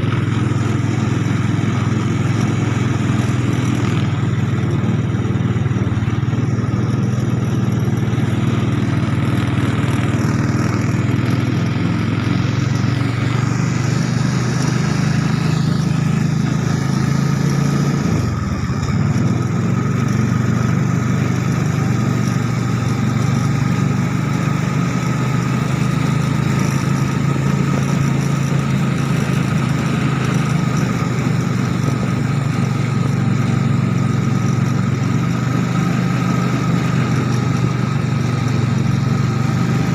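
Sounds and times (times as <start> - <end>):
small motorcycle engine running: 0.0 - 39.9.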